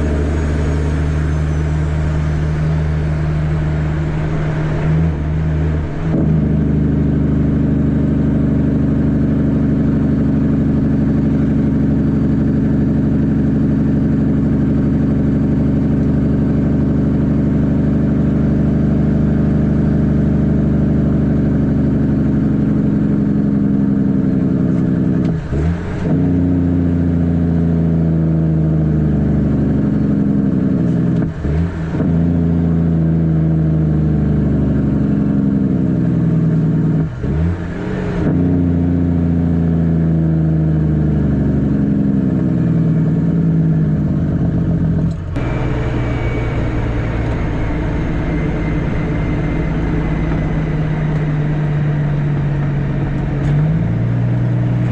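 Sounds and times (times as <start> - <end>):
diesel truck engine running: 0.0 - 54.9
gear shifts: 45.0 - 54.9.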